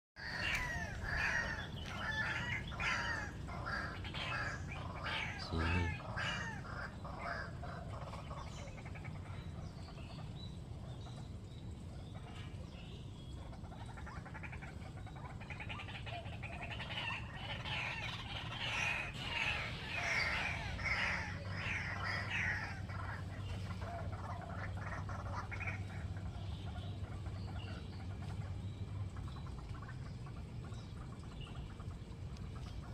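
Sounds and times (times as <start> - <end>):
waterhen harsh calls: 0.2 - 10.3, 13.4 - 32.9
low hum: 17.8 - 32.9.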